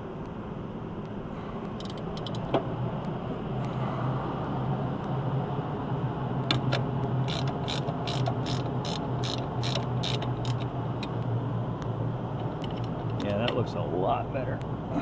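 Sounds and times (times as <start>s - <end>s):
ratchet wrench clicking: 1.8s - 2.5s, 7.2s - 11.2s.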